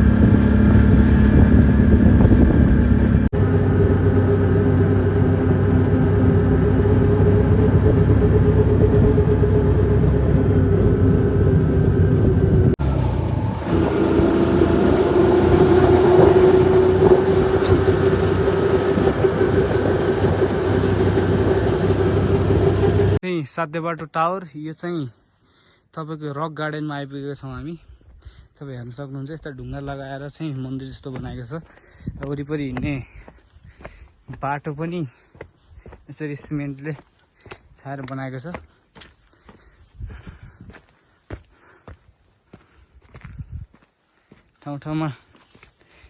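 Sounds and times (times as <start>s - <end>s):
vehicle engine running: 0.0s - 23.2s.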